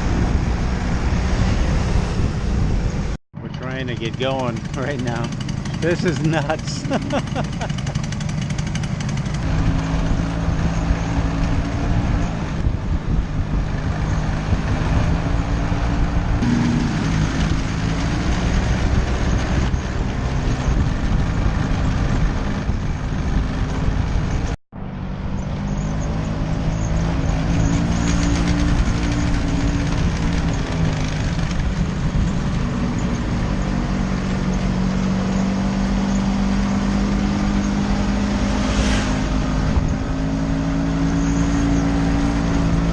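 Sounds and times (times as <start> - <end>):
wind noise on microphone: 0.0 - 3.5, 9.4 - 42.9
scooter engine running: 3.4 - 14.2, 26.7 - 40.6.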